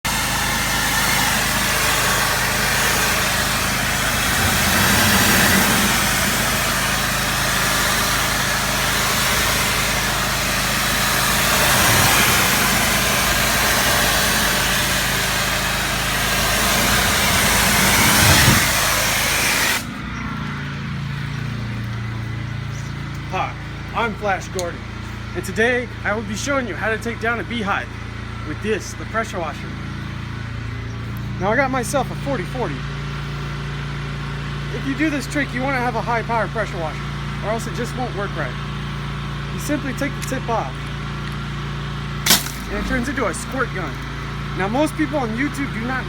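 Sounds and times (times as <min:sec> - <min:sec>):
pressure washer engine running: 0:00.0 - 0:46.0
water spray hissing: 0:00.1 - 0:20.0, 0:42.3 - 0:46.0.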